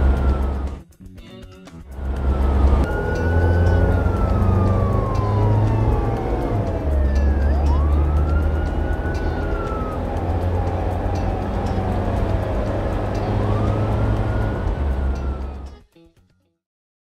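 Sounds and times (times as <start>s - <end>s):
siren wailing: 0.0s - 0.8s, 2.0s - 15.8s.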